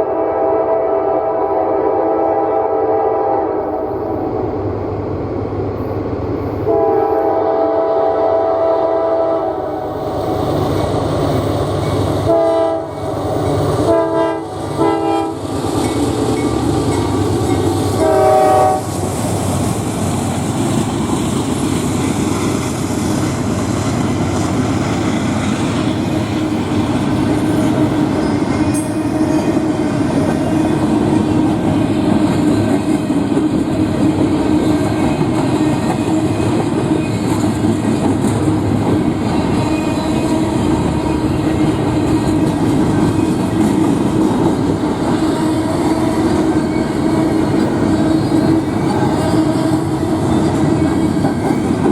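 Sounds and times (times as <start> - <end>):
train air horn blasts: 0.0 - 3.9, 6.6 - 9.9, 12.2 - 13.0, 13.8 - 15.4, 18.0 - 19.1
train wheels clickety-clack: 8.8 - 51.9.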